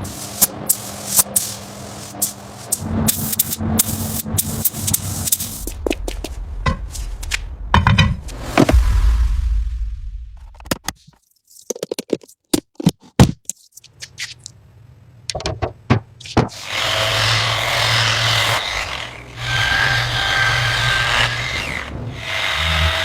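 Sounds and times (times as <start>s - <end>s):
sharp knocks and clicks: 15.3s - 16.6s
hissing power tool whir: 16.5s - 23.0s.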